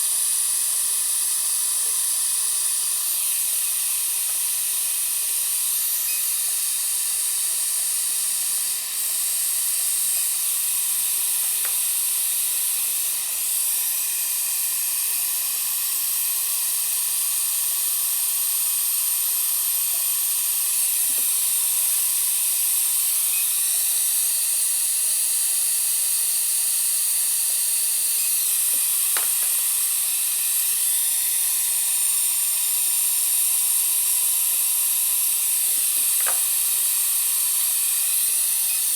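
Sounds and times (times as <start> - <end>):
dental drill whining: 0.0 - 38.9.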